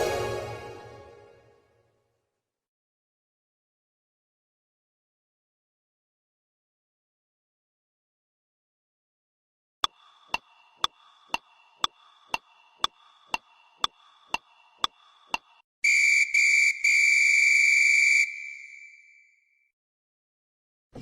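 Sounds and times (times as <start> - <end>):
steady ticking: 9.8 - 15.6
loud high whistle-like tone: 15.8 - 19.6.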